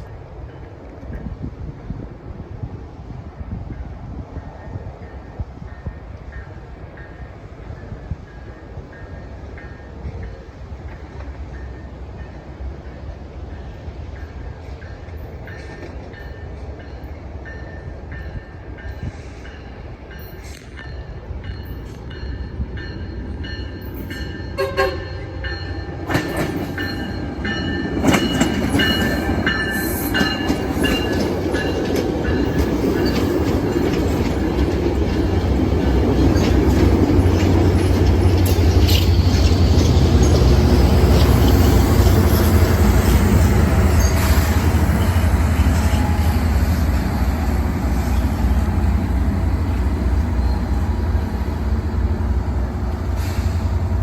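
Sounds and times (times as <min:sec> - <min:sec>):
train wheels rumbling on rails: 0:00.0 - 0:54.0
train horn: 0:24.6 - 0:25.4.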